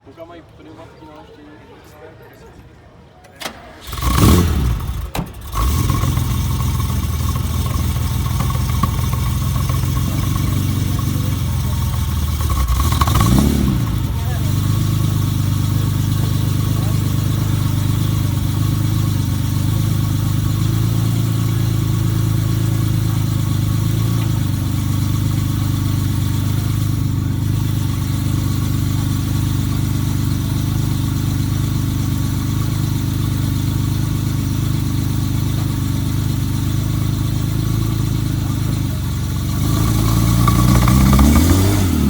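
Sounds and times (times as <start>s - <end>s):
car engine idling: 3.3s - 42.0s.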